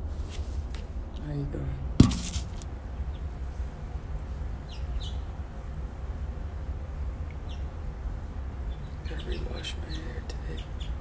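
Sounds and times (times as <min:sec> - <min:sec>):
sharp knock: 0:02.0 - 0:02.6.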